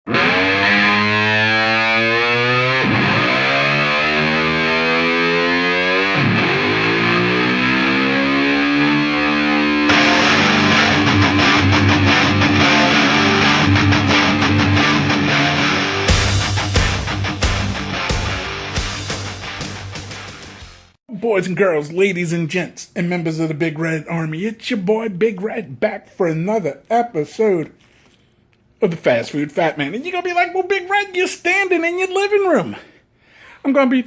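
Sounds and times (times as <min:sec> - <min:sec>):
distorted electric guitar sliding: 0:00.1 - 0:20.9
rock band with drums: 0:00.1 - 0:21.0.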